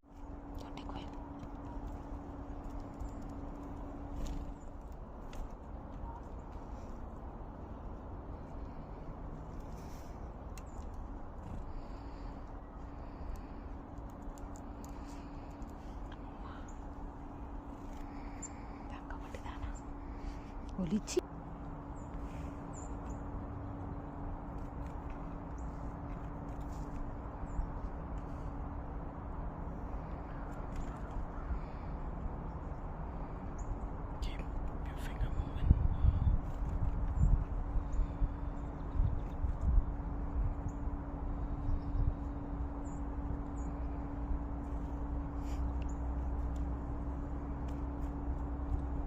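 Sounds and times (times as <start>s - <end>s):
faint hum: 0.0s - 49.0s
low outdoor rumble: 0.0s - 49.0s
small birds chirping: 0.1s - 28.6s, 29.9s - 49.0s.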